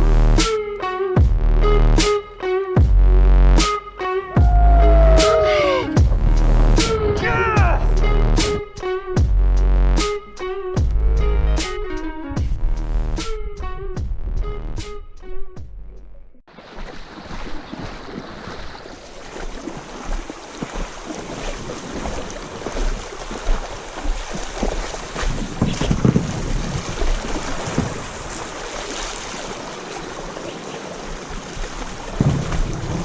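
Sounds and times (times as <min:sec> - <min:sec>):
wind buffeting microphone: 0:04.3 - 0:09.4, 0:19.6 - 0:28.6, 0:31.1 - 0:33.0.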